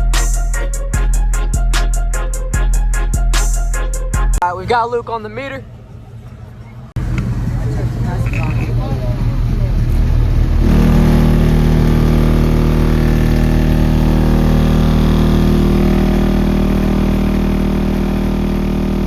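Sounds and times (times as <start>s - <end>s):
subwoofer bass tone with buzzing: 0.0s - 4.4s, 8.6s - 19.0s.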